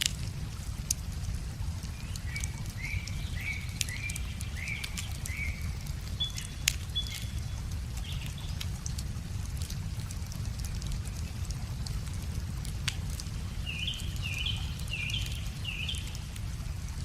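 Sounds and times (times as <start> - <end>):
wood fire crackling and popping: 0.0 - 17.0
small bird chirping: 1.9 - 8.6, 13.6 - 16.3.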